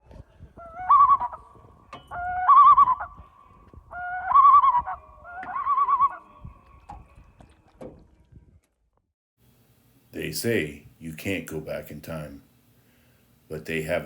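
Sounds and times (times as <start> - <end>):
bird call with warbling trill: 0.6 - 7.7.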